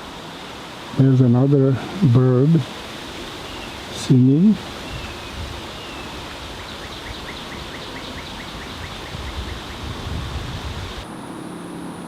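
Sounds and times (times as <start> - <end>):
outdoor background noise: 0.0 - 12.0
bird singing repeated notes: 4.8 - 9.9.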